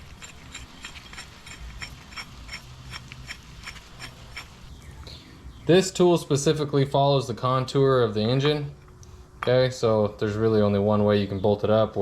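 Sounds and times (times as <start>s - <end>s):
ratchet clicking: 0.0s - 4.6s.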